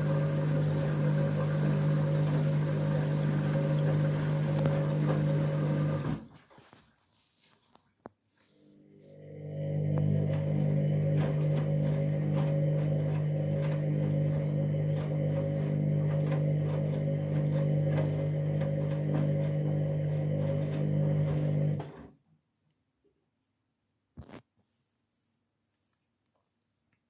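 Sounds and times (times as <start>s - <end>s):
washing machine humming: 0.0s - 7.2s, 8.7s - 22.1s.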